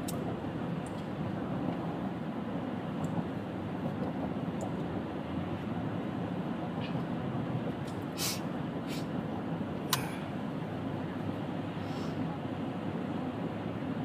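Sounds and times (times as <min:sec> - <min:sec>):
car road and engine noise: 0:00.0 - 0:14.0
brief hisses: 0:08.2 - 0:09.1.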